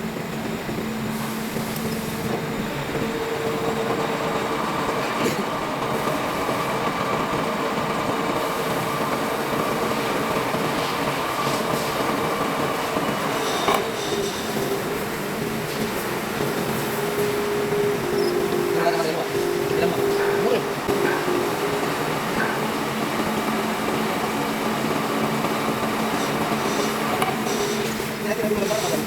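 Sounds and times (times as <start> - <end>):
steady machine whine: 0.0 - 29.0.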